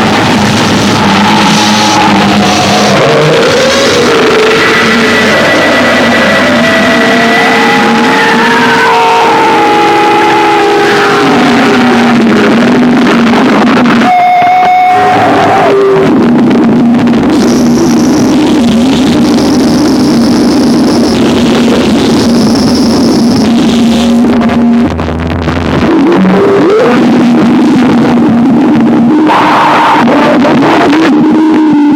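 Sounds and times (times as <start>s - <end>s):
distorted electronic noise: 0.0s - 31.9s
steady low drone: 0.0s - 31.9s
high piercing tones: 17.3s - 24.2s.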